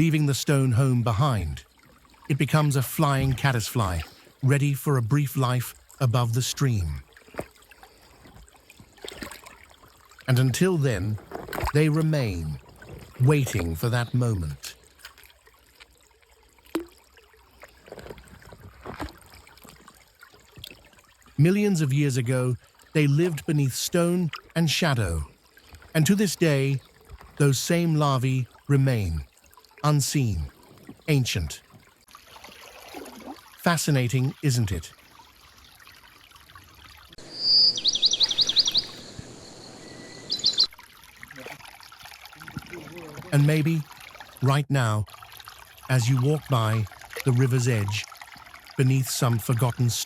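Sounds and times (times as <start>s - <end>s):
running water trickling: 0.0s - 50.0s
short splashy sounds: 7.0s - 13.9s, 32.0s - 35.0s
small bird singing: 37.2s - 40.7s.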